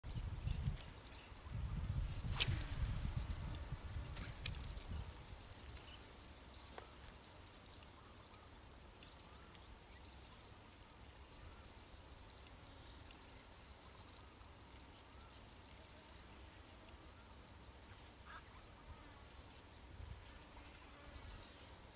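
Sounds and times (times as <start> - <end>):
wind rumble on microphone: 0.0 - 5.8
thin high hum: 0.0 - 7.3
insect chirping: 0.0 - 21.9.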